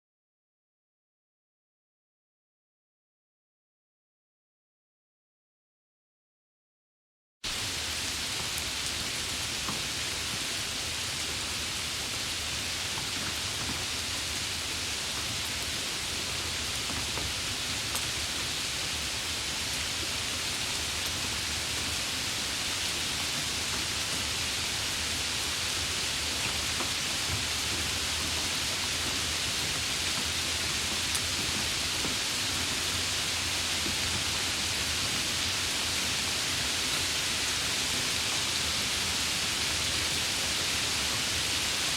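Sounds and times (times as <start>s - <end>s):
heavy rain: 7.5s - 41.9s
raindrop ticks: 26.3s - 33.0s.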